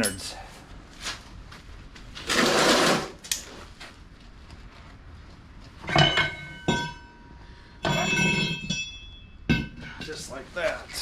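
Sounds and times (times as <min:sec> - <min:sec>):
sharp metal clinks: 0:00.0 - 0:00.3
harsh metal scrape: 0:02.2 - 0:03.2.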